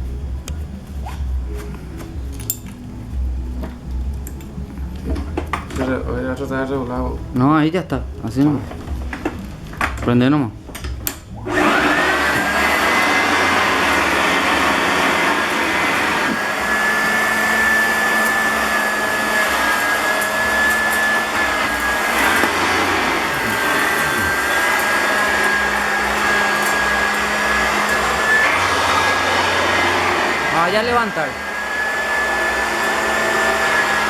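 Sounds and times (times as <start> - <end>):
vacuum cleaner running: 10.8 - 34.0.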